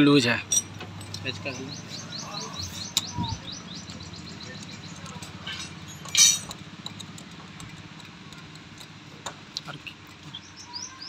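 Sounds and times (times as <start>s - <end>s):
small bird chirping: 1.0s - 6.1s, 9.8s - 11.0s.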